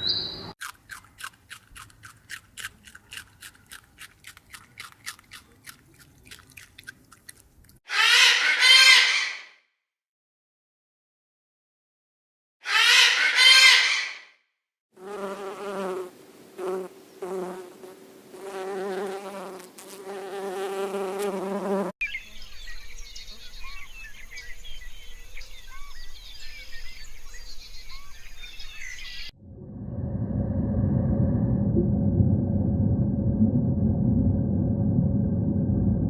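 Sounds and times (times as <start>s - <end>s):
faint bird chirps: 0.0s - 0.5s, 22.0s - 29.3s
loud animal call: 7.9s - 9.5s, 12.6s - 14.2s
bee buzzing: 15.0s - 22.0s.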